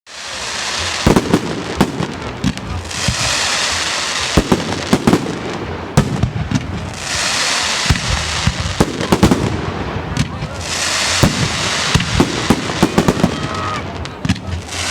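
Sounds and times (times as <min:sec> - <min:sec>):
firework crackling hiss: 0:00.1 - 0:14.9.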